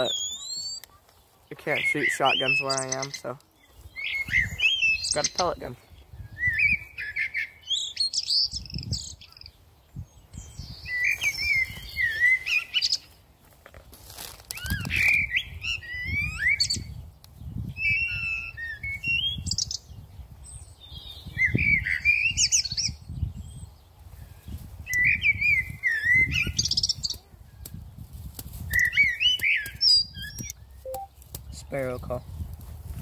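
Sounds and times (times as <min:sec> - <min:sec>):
songbird chirps and whistles: 0:00.0 - 0:01.2, 0:01.8 - 0:05.3, 0:06.2 - 0:13.2, 0:14.5 - 0:23.0, 0:24.9 - 0:27.2, 0:28.6 - 0:31.1
wind rumble on microphone: 0:03.8 - 0:05.2, 0:05.8 - 0:07.0, 0:08.4 - 0:12.2, 0:14.5 - 0:33.0.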